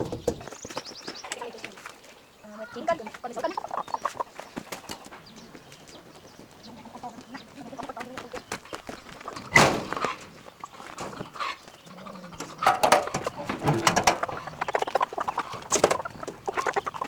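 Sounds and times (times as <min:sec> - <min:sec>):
chickens squawking: 0:02.4 - 0:17.0
handling clicks and knocks: 0:12.4 - 0:16.5.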